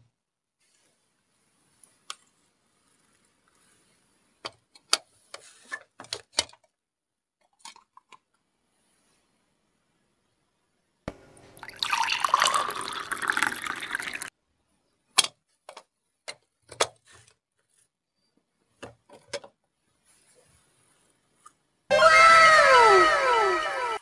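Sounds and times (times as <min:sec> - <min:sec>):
juice pouring into a cup: 0:11.4 - 0:14.3.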